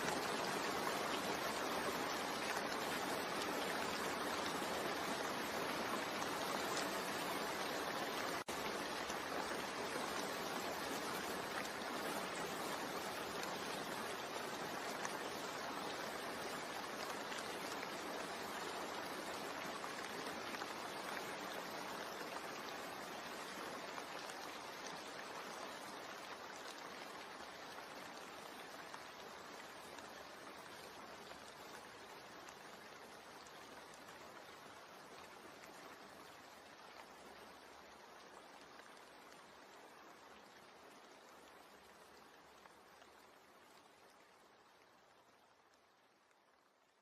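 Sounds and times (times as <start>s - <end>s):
steady rain: 0.0s - 47.0s.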